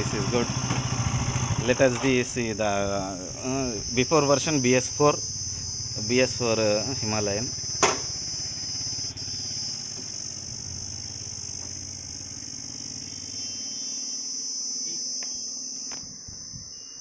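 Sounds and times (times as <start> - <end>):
motorcycle engine idling: 0.0 - 13.6
crickets chirping: 0.0 - 17.0.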